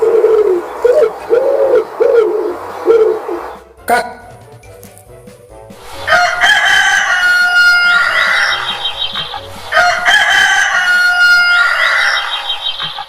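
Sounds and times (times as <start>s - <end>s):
rooster crowing: 6.0s - 9.0s, 9.6s - 13.0s.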